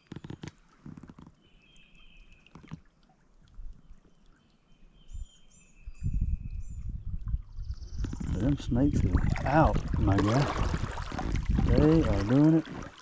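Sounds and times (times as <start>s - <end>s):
low rumble: 6.3s - 12.3s.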